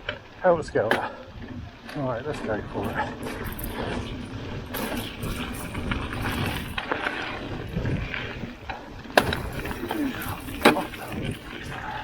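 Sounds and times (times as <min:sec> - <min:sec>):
bike tyres on dirt trail: 0:00.0 - 0:12.0
bike chain snapping clack: 0:02.8 - 0:08.0, 0:09.2 - 0:12.0.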